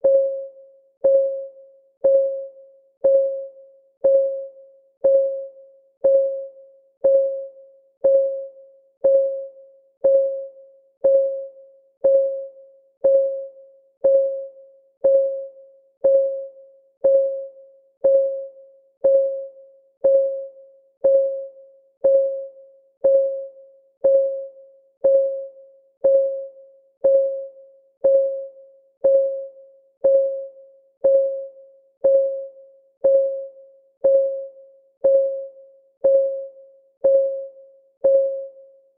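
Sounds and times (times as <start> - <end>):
timer ticking: 1.0 - 1.4, 2.0 - 38.5.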